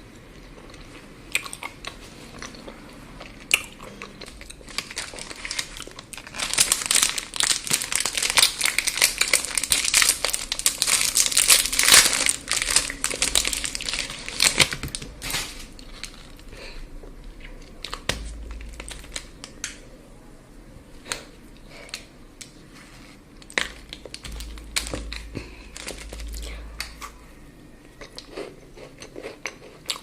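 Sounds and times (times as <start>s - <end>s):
wrapper crinkling: 4.6s - 16.4s, 17.8s - 19.8s, 23.4s - 27.1s.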